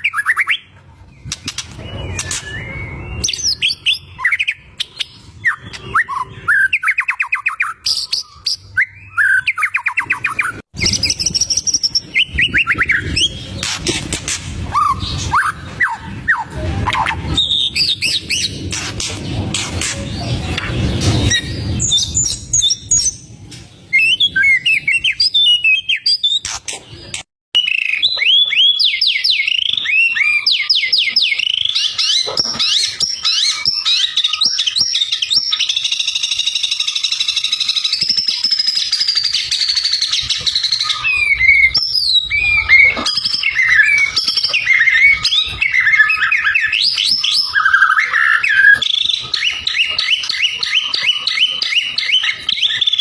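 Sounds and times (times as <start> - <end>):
bird singing whistles and trills: 1.2 - 14.0, 23.9 - 53.0.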